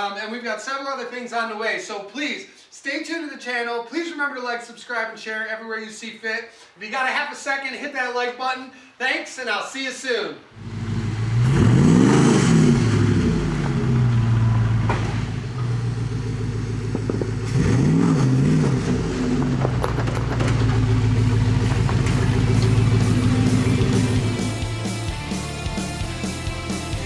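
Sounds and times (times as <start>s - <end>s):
engine idling and revving: 10.6s - 24.9s.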